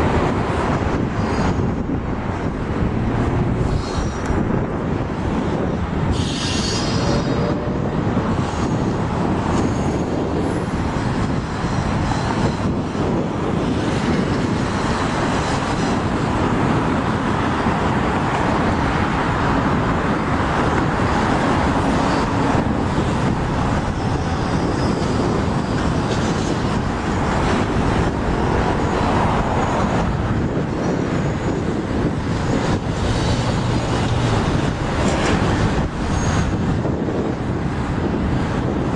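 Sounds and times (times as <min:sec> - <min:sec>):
freight train rumbling past: 0:00.0 - 0:38.9
wheel squeal: 0:03.6 - 0:04.3, 0:06.1 - 0:07.5, 0:08.4 - 0:10.7, 0:23.9 - 0:26.6, 0:35.9 - 0:36.7.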